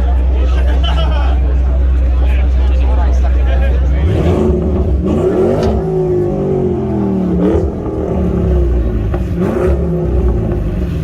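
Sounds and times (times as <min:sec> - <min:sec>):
car engine revving: 0:03.5 - 0:11.0.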